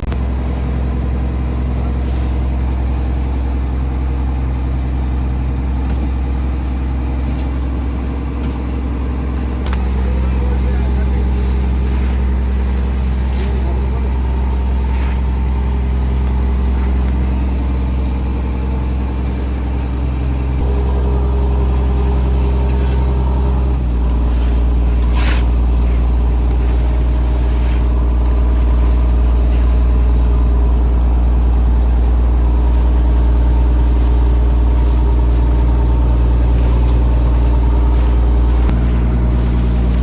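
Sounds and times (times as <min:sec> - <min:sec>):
diesel boat engine running: 0:00.0 - 0:40.0
high whine: 0:00.0 - 0:40.0.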